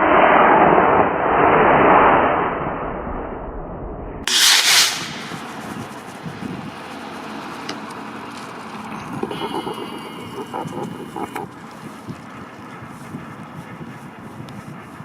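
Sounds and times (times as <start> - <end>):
short burst of loud noise: 4.3 - 6.1.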